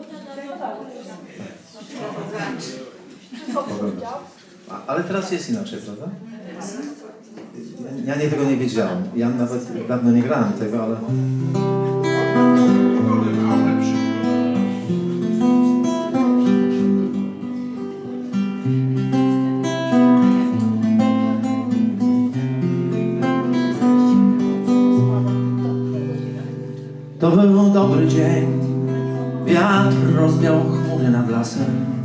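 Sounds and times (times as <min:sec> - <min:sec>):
guitar strumming chords: 0:11.1 - 0:32.0.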